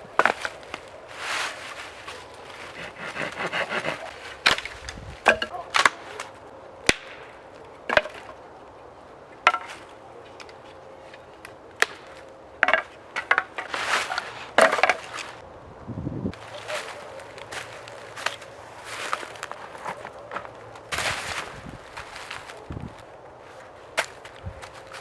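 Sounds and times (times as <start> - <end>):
dry wood cracking: 0.0 - 15.4, 16.3 - 25.0
rustling scrapes: 0.2 - 5.2, 13.2 - 15.4, 16.4 - 25.0.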